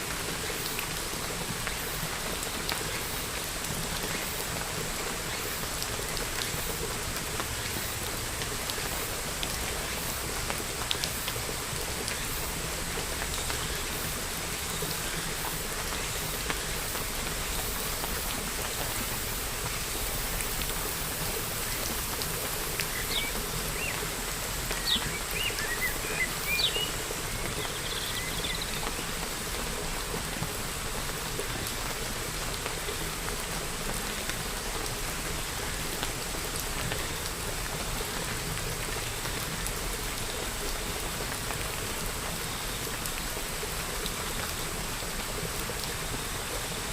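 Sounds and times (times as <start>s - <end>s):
steady rain falling: 0.0s - 46.9s
bird chirps: 24.8s - 26.9s.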